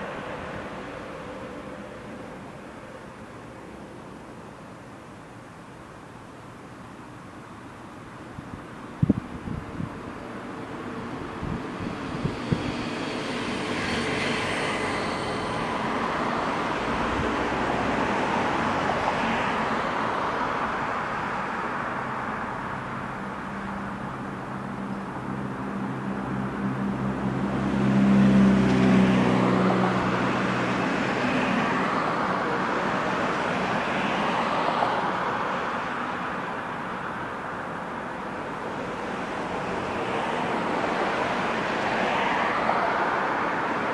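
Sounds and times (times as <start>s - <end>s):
road traffic passing: 0.0s - 43.9s
passing vehicle engine hum: 9.0s - 43.9s.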